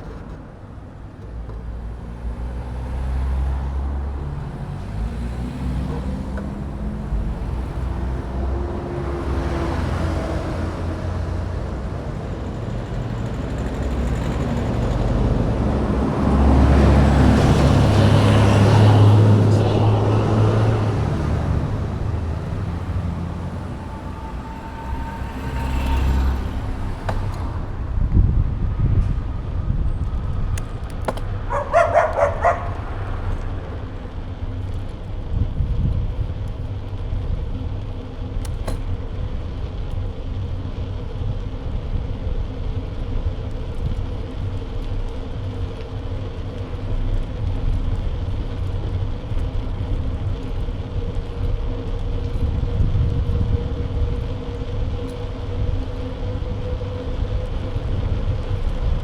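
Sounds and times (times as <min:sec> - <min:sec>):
road rumble: 0:00.0 - 0:59.0
wind roar on camera: 0:13.5 - 0:59.0.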